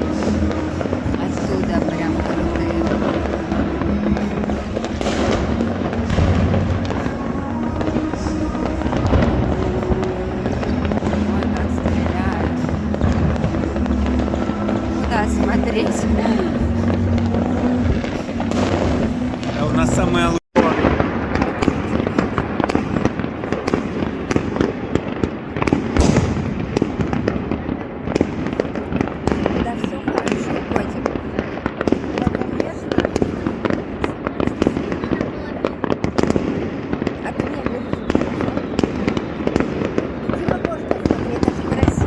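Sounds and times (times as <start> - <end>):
continuous rumble: 0.0 - 36.3
fireworks crackling and banging: 0.0 - 42.0.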